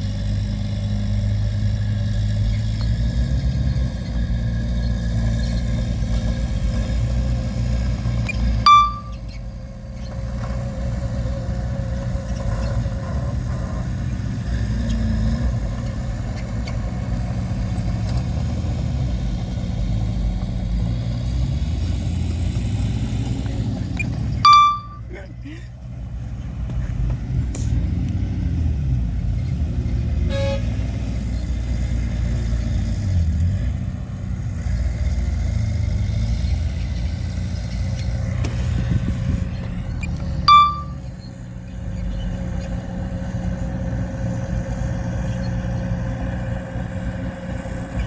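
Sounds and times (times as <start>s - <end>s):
heavy diesel engine running: 0.0s - 48.0s
loud high beep: 8.7s - 9.2s, 24.4s - 25.1s, 40.5s - 41.0s.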